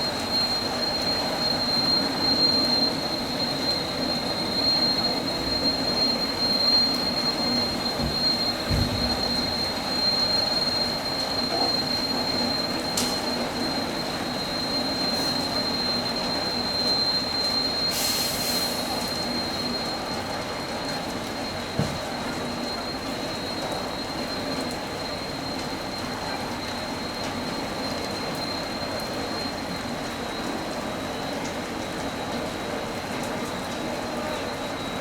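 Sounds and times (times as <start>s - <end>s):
high-pitched whistle: 14.4s - 20.2s.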